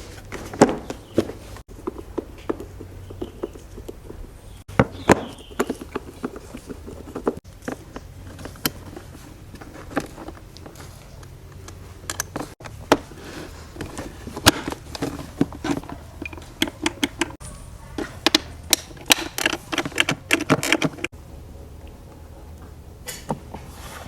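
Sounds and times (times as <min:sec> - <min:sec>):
small hard parts clicking: 0:13.8 - 0:17.4, 0:18.0 - 0:21.1.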